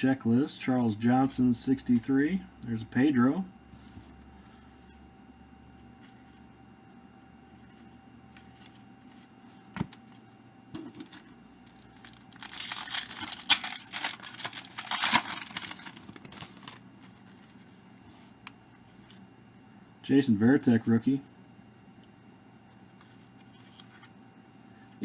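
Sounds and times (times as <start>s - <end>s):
wrapper tearing and crinkling: 11.1s - 17.6s.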